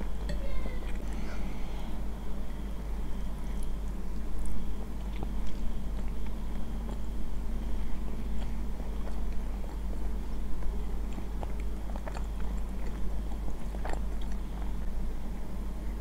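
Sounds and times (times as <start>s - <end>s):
chewing noodles: 2.4s - 16.0s.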